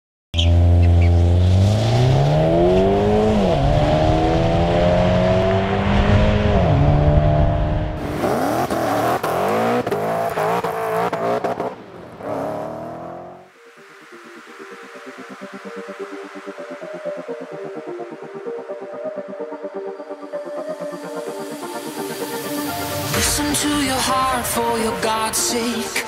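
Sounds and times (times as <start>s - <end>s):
car accelerating at full throttle: 0.4s - 13.5s.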